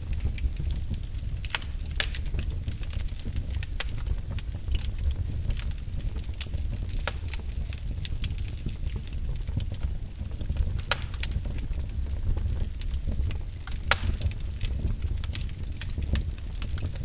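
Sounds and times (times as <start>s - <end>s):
fire crackles and pops: 0.0s - 17.0s
logs burning in fireplace: 0.0s - 17.0s.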